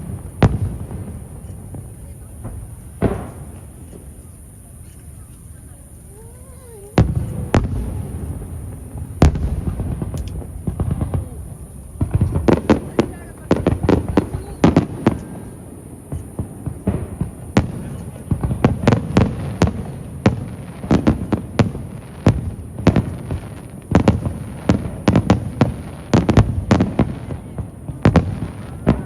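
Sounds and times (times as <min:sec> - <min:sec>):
fireworks bursting: 0:00.0 - 0:29.0
low rumbling echo: 0:06.9 - 0:15.9.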